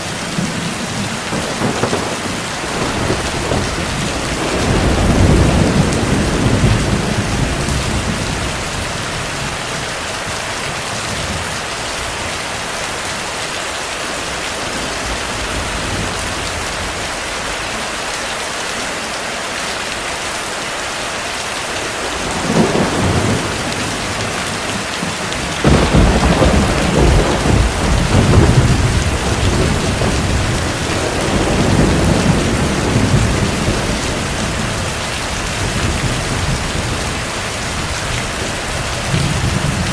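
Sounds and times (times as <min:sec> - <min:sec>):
heavy rain: 0:00.0 - 0:39.9
rolling thunder: 0:00.4 - 0:09.6, 0:22.0 - 0:39.9.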